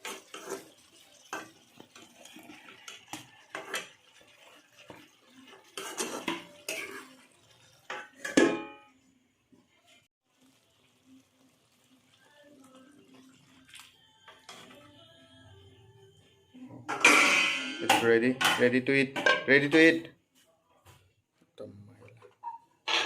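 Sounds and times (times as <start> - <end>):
metal utensils clinking on dishes: 0.0 - 8.9, 16.9 - 19.9.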